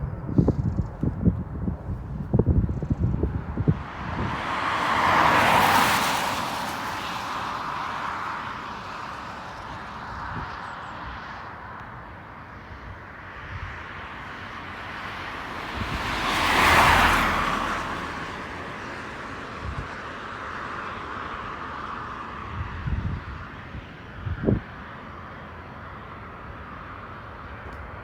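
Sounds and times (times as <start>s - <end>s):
vehicle passing close by: 2.9s - 10.5s, 13.4s - 23.5s.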